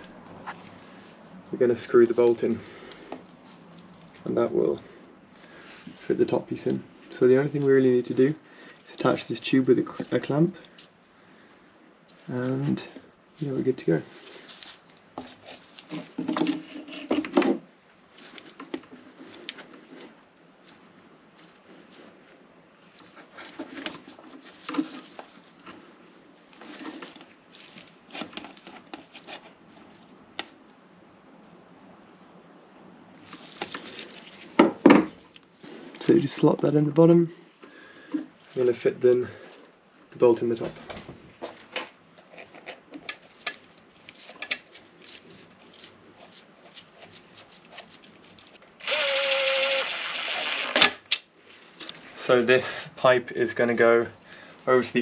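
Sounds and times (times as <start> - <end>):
small power driver whirring: 48.8 - 51.0.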